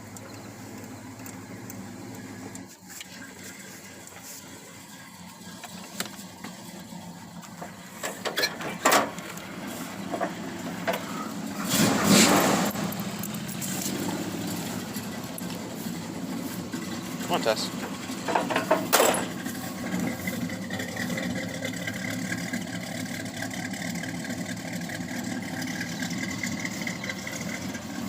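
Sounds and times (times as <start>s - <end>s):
car engine starting and running: 0.0s - 28.0s.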